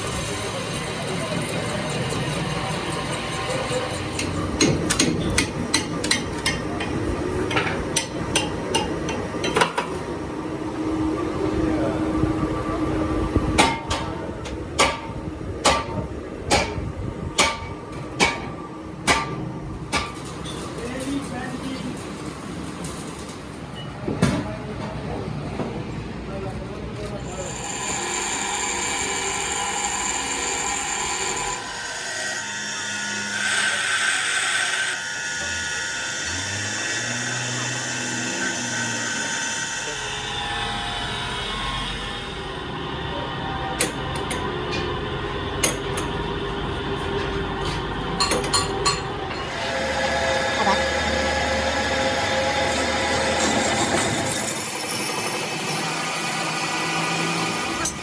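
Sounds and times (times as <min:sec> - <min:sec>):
hammer striking metal: 0:13.6 - 0:14.2, 0:14.8 - 0:20.7
power tool whining: 0:27.4 - 0:42.6, 0:49.3 - 0:58.0.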